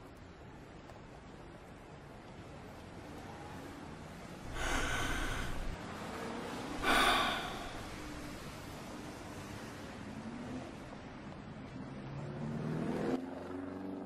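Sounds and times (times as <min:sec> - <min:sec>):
person exhaling smoke: 0:04.5 - 0:05.8, 0:06.8 - 0:08.4.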